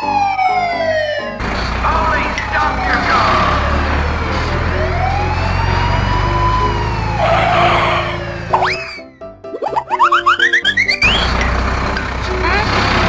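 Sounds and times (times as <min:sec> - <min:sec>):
emergency siren wailing: 0:00.0 - 0:09.2, 0:10.1 - 0:11.5
low engine rumble: 0:01.4 - 0:08.5, 0:11.0 - 0:13.0.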